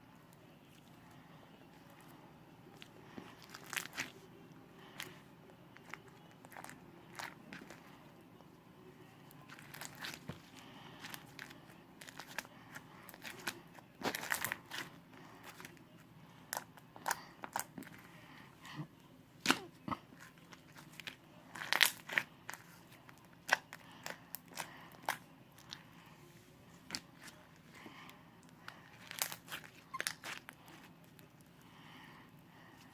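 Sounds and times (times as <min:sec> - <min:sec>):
slime being kneaded: 0:28.7 - 0:30.9.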